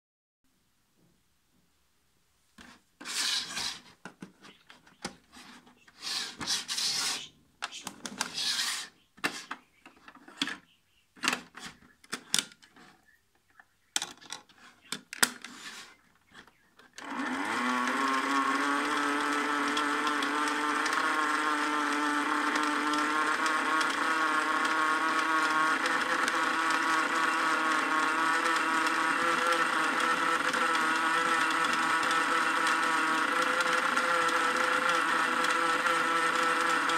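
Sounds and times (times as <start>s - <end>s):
handling noises rubbing and clicking: 2.6s - 17.0s
small electric motor whining: 15.4s - 36.9s.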